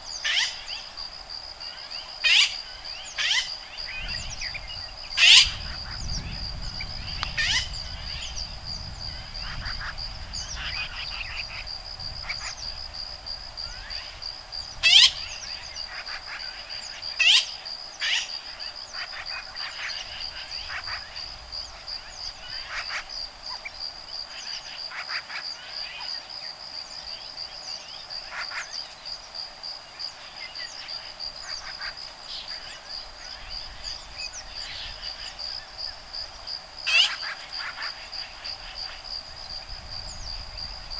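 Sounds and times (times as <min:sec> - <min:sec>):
pulsing insect trill: 0:00.0 - 0:40.9
woodpeckers calling: 0:00.1 - 0:00.9.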